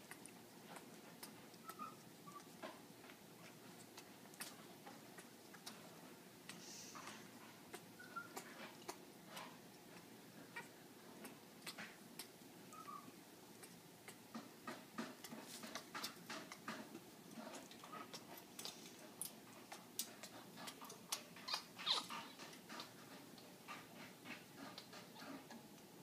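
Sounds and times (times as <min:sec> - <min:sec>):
parrot chirp: 0:01.6 - 0:02.5, 0:08.0 - 0:08.4, 0:12.7 - 0:13.1
parrot squeak: 0:01.7 - 0:02.4, 0:12.7 - 0:13.1, 0:21.5 - 0:22.3.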